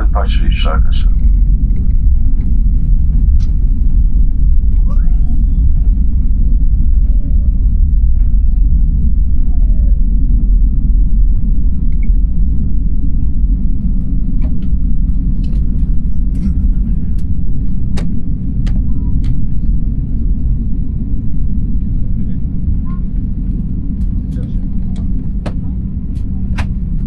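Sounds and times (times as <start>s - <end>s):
airliner engines low rumble: 0.0s - 27.0s.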